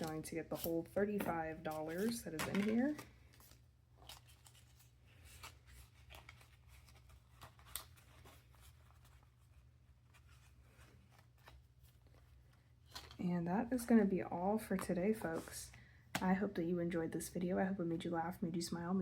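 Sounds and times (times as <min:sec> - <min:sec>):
paper rustling: 0:00.0 - 0:13.2.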